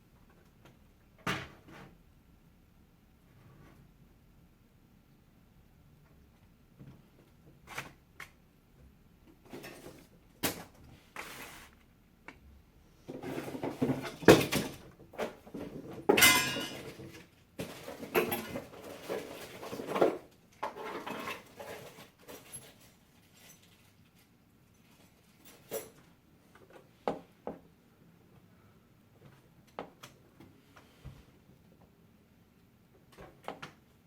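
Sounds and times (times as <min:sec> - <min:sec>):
computer parts and tools handled: 0:13.1 - 0:26.8.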